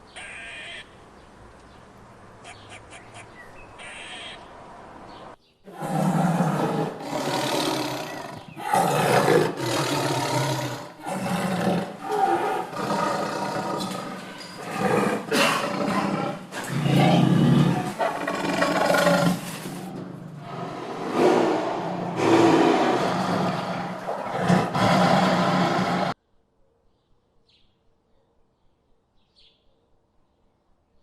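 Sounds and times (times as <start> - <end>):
loud wild animal calls: 0.1 - 0.9, 2.4 - 4.5, 5.7 - 26.2.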